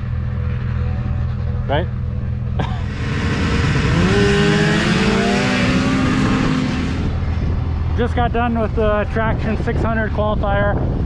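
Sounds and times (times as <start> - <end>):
snowmobile engine revving: 2.6 - 7.4.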